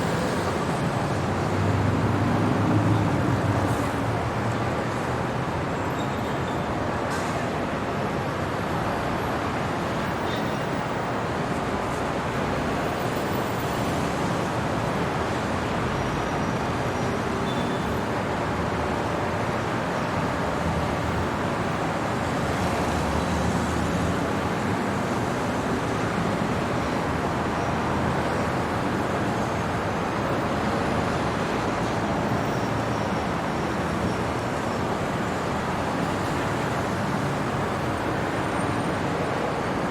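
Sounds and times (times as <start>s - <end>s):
city traffic noise: 0.0s - 39.9s.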